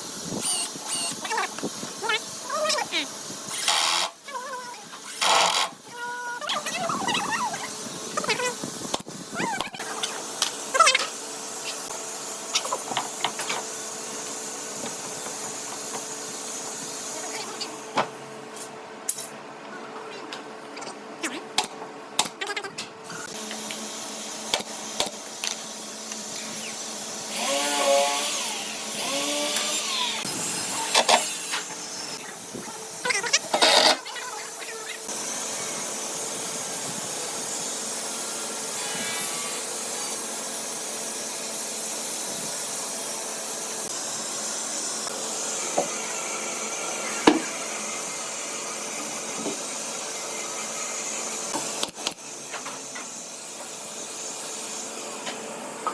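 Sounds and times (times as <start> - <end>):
power tool cutting wood: 0.4 - 4.3, 5.0 - 5.9, 23.2 - 55.2.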